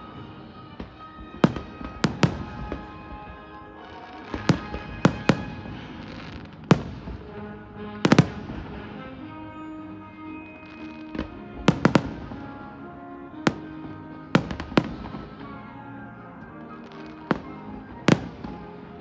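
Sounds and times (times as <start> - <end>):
fireworks bangs: 0.0 - 19.0
music: 0.0 - 19.0.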